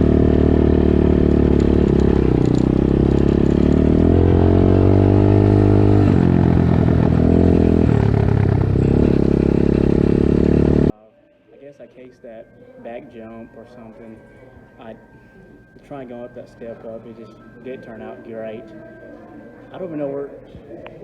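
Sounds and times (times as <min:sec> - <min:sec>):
dirt bike engine accelerating: 0:00.0 - 0:10.9.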